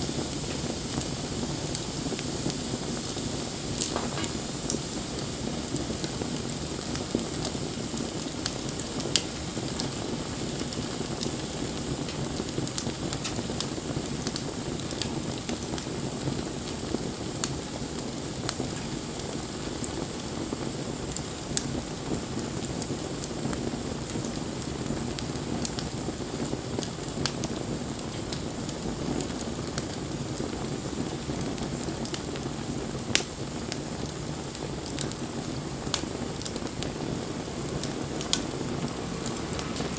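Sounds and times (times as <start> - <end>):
bonfire flames hissing: 0.0 - 39.9
fire crackling and popping: 0.0 - 39.9.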